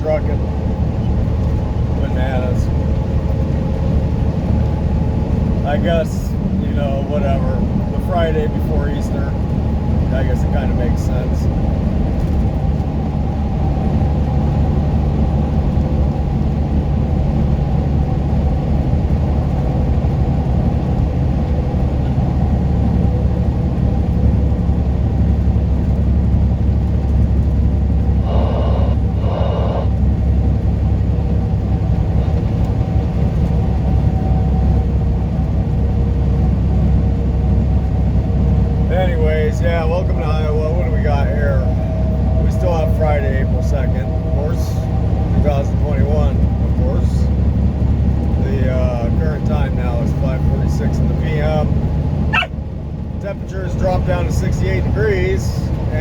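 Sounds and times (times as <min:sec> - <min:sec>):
truck engine and road drone: 0:00.0 - 0:56.0
short pitched sounds: 0:28.2 - 0:30.0.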